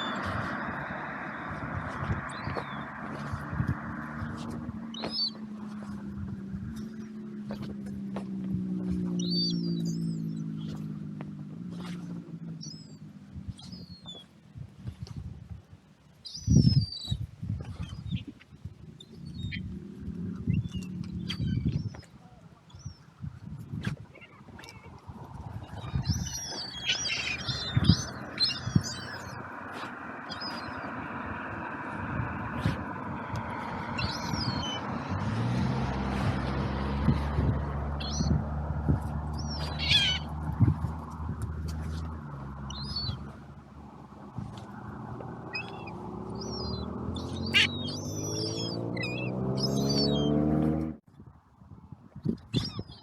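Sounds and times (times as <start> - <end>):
gulls and crows calling: 0.0 - 14.3, 19.0 - 23.1, 24.1 - 50.6
vehicle engine running: 0.0 - 15.0, 24.7 - 51.0
dull low thumps: 32.1 - 49.0.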